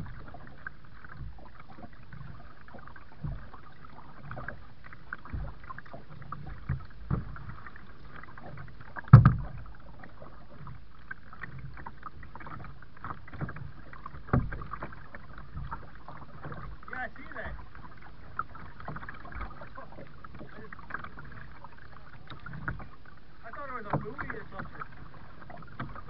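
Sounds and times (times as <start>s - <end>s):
paddle strokes: 0.0s - 26.0s
water splashing and dripping: 0.0s - 26.0s
knocks on boat: 3.2s - 3.6s, 5.2s - 5.7s, 6.4s - 7.6s, 8.4s - 9.7s, 12.4s - 16.8s.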